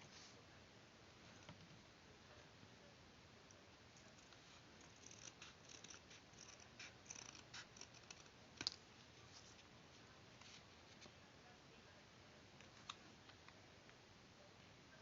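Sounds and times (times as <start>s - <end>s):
small clicks and scratching: 4.0s - 8.8s.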